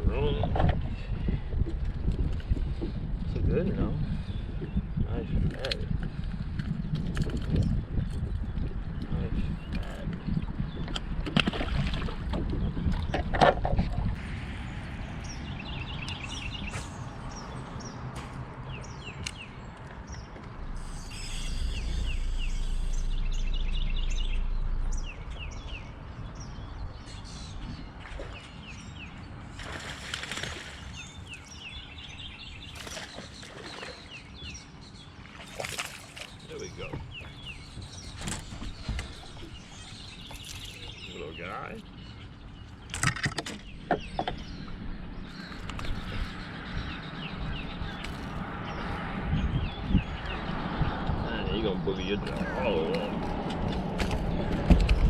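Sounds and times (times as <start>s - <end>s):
low rumbling: 0.0s - 29.6s
songbirds chirping: 2.1s - 55.0s.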